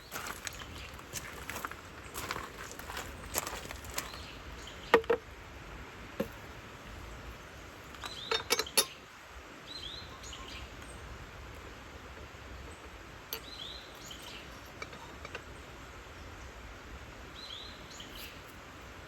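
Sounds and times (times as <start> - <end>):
faint outdoor background: 0.0 - 19.0
light taps and clinks: 7.9 - 9.0.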